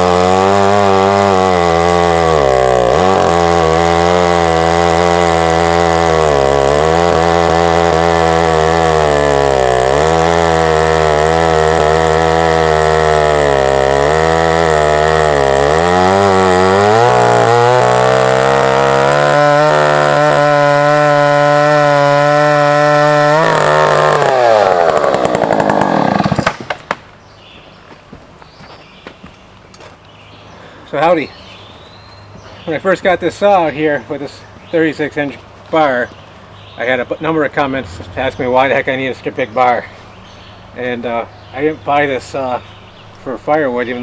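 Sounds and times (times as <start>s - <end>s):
chainsaw running under load: 0.0s - 27.0s, 37.0s - 44.0s.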